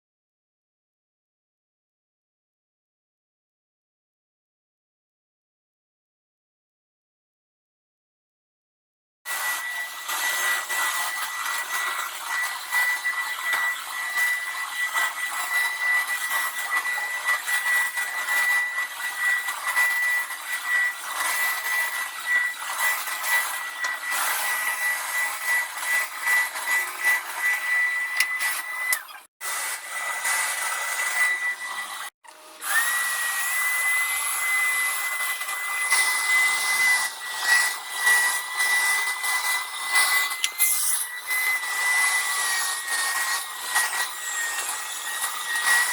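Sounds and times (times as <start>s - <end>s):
carpet washer motor whine: 9.3s - 45.9s
suction and spinning brushes rush: 40.2s - 41.3s.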